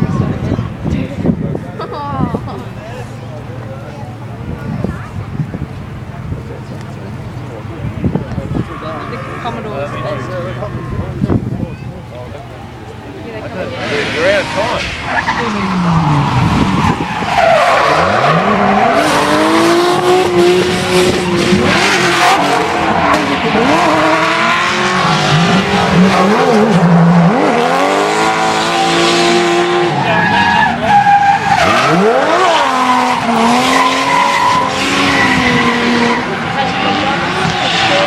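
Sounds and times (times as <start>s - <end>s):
car engines revving hard: 0.0s - 38.0s
tyres squealing and skidding: 13.6s - 38.0s.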